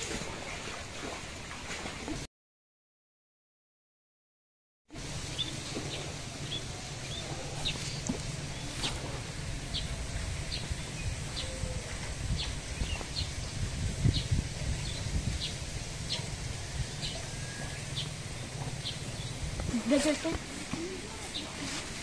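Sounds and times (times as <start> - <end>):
steady low rumble: 5.0 - 21.2.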